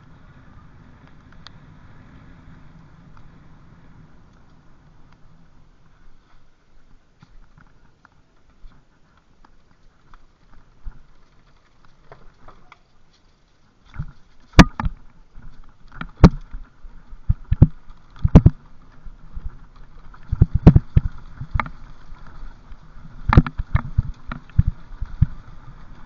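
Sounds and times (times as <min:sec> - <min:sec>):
bicycle rattling on rough trail: 0:00.0 - 0:26.0
bicycle knocking over bumps: 0:13.9 - 0:26.0.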